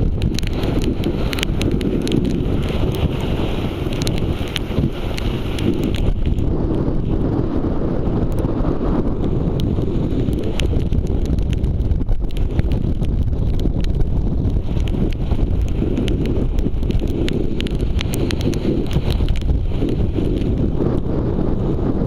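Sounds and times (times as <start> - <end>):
sharp ticks: 0.0 - 6.5, 9.6 - 20.7
wind buffeting microphone: 0.0 - 22.0.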